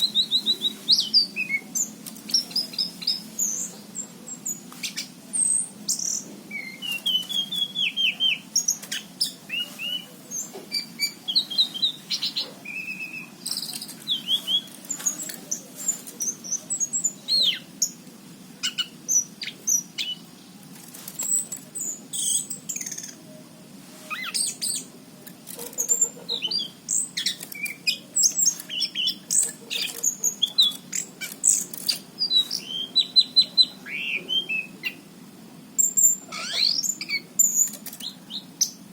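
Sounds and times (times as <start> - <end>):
thrush singing whistles and trills: 4.4 - 15.2, 25.8 - 35.1, 35.8 - 38.9.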